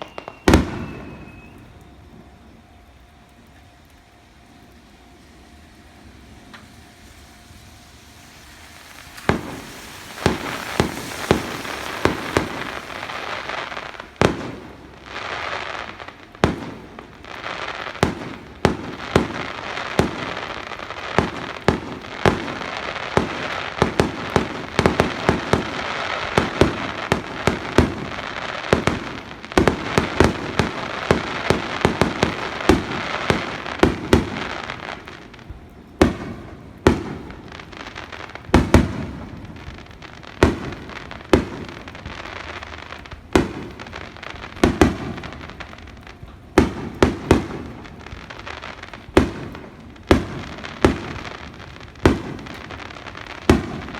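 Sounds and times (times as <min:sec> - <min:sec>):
fireworks bangs: 0:00.0 - 0:03.0, 0:05.8 - 0:53.9
hissing crackle: 0:00.0 - 0:53.9.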